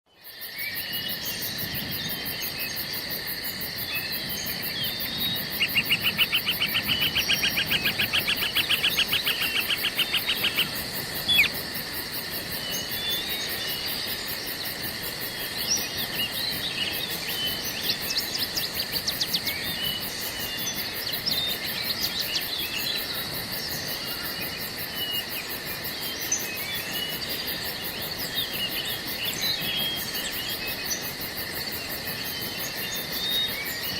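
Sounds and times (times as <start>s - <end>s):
insects chirring: 0.1s - 33.9s
birds chirping and calling: 4.5s - 11.6s.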